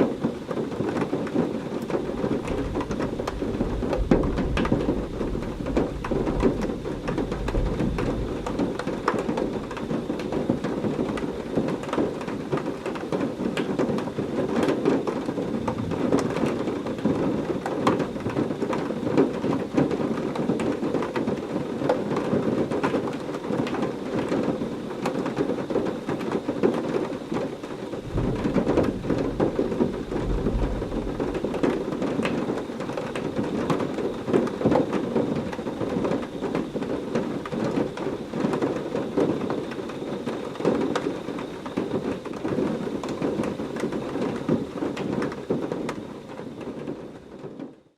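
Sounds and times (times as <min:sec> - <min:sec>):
heavy rain: 0:00.0 - 0:47.8
thunder rumbling: 0:00.2 - 0:18.5, 0:27.3 - 0:45.6.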